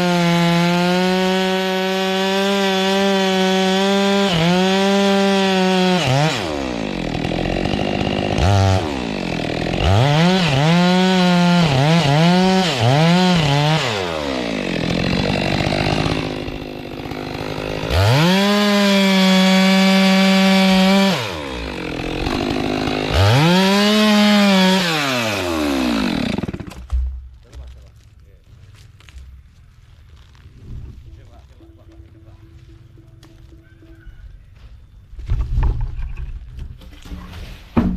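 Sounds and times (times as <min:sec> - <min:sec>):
chainsaw revving: 0:00.0 - 0:26.7.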